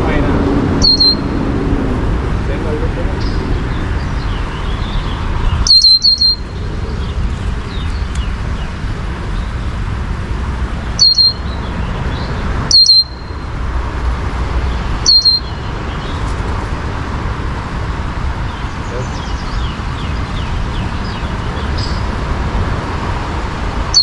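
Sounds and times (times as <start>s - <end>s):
bird chirping call: 0.0s - 9.6s, 11.0s - 13.6s, 14.6s - 16.8s
low traffic hum: 0.0s - 24.0s
faint bird chirps: 0.8s - 8.8s, 11.0s - 13.5s, 14.9s - 16.8s.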